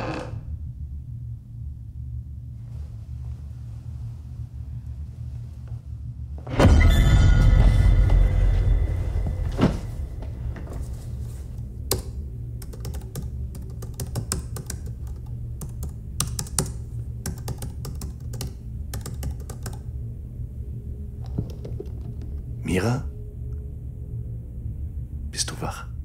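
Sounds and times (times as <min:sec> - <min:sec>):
low steady hum: 0:00.0 - 0:26.0
laptop keyboard typing: 0:11.9 - 0:19.9.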